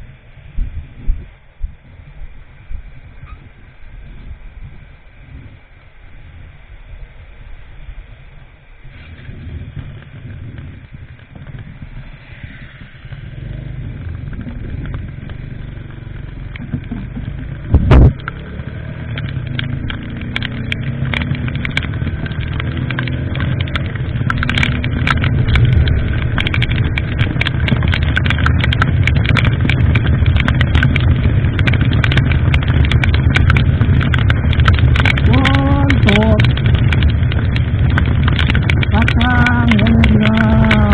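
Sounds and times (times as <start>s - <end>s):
wind noise on microphone: 0.0s - 40.9s
motorcycle engine: 8.9s - 40.9s
sharp crackling clicks: 9.0s - 40.9s.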